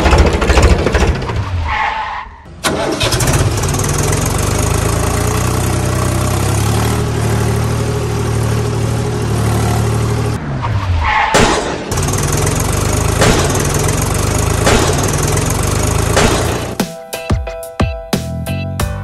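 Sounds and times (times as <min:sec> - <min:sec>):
vehicle engine running: 0:00.0 - 0:01.5, 0:02.6 - 0:10.4, 0:11.4 - 0:16.8.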